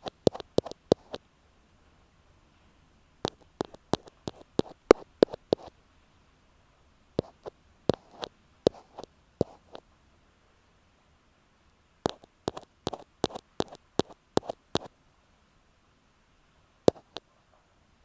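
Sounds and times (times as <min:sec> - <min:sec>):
ear pick tapping microphone: 0:00.0 - 0:01.2, 0:03.2 - 0:05.7, 0:07.2 - 0:09.8, 0:12.0 - 0:14.9, 0:16.9 - 0:17.3.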